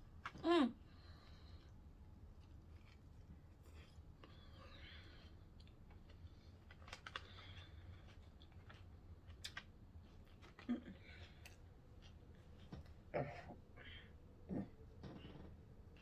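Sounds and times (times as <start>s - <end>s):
low room hum: 0.0s - 16.0s
sandwich being chewed: 1.4s - 13.1s.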